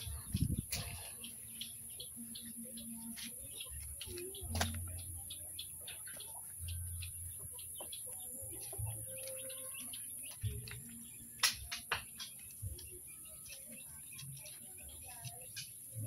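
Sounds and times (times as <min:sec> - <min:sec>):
birds chirping and clucking: 0:00.0 - 0:16.0.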